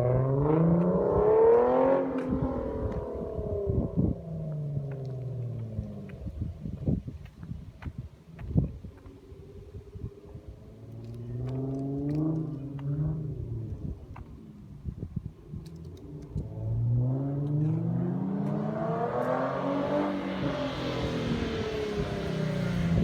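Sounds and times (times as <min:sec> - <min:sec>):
car engine revving: 0:00.0 - 0:06.2, 0:10.8 - 0:13.9, 0:15.8 - 0:23.0.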